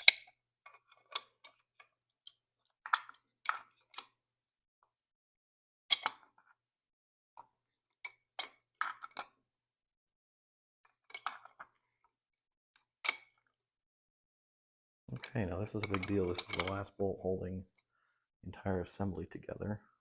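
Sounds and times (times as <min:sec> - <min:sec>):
metal tools clinking: 0:15.1 - 0:16.9.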